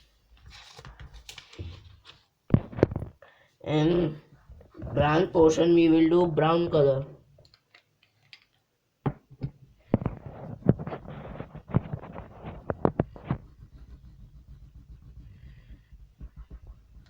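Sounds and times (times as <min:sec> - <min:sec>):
scratchy colouring strokes: 0:10.2 - 0:17.0.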